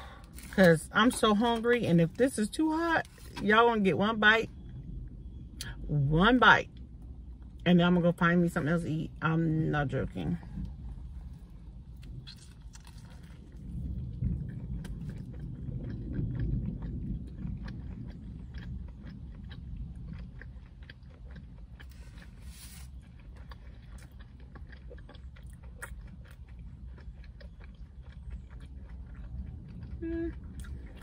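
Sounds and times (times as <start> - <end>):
chewing crispy fried chicken: 0.0 - 5.8, 9.9 - 31.0.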